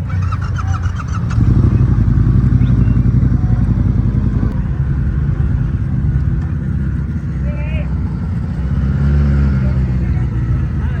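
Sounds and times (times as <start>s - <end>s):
motorcycle engine running hard: 0.0s - 11.0s.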